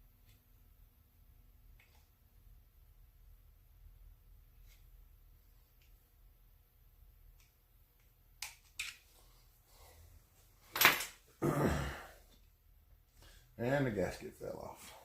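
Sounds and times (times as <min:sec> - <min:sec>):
small clicks of hand work: 0:07.3 - 0:09.1.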